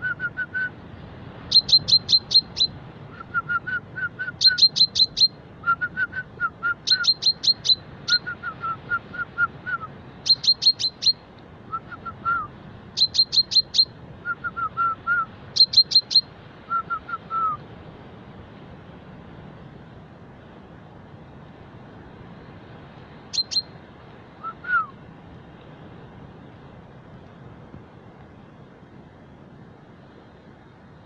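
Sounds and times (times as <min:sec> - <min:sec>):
chaffinch singing: 0:01.4 - 0:05.8, 0:06.4 - 0:17.6, 0:23.3 - 0:23.8.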